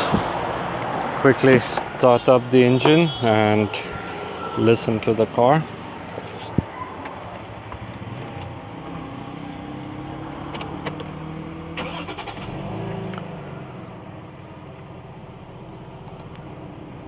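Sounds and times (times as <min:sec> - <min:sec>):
car engine starting and idling: 0:03.6 - 0:17.0.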